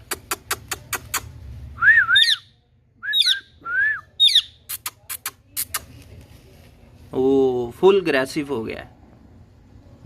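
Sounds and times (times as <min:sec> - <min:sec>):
parrot whistled calls: 0:01.8 - 0:04.6.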